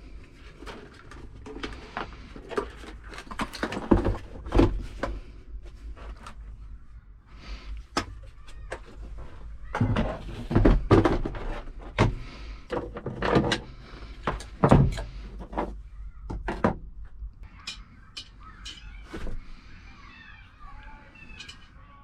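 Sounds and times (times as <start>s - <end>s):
irregular knocks and clatters: 8.4s - 19.4s.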